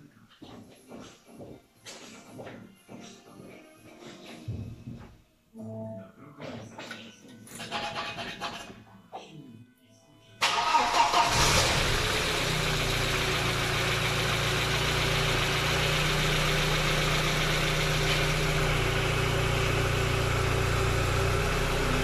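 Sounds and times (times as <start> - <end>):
car engine idling: 10.5 - 22.0.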